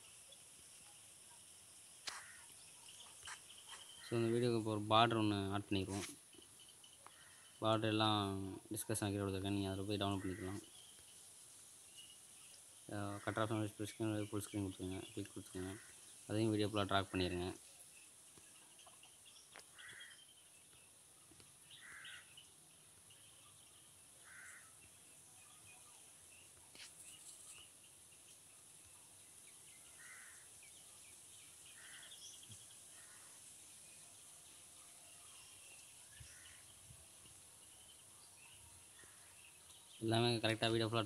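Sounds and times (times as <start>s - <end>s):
faint steady hiss: 0.0s - 41.0s
faint short bird calls: 2.0s - 4.2s.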